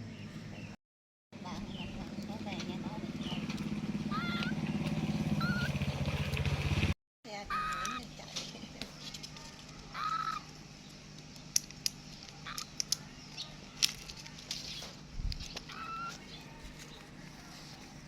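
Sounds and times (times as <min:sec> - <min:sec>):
high-pitched animal calls: 0:04.0 - 0:04.6, 0:05.3 - 0:05.8, 0:07.3 - 0:08.2, 0:09.8 - 0:10.6, 0:12.4 - 0:12.8, 0:15.6 - 0:17.0.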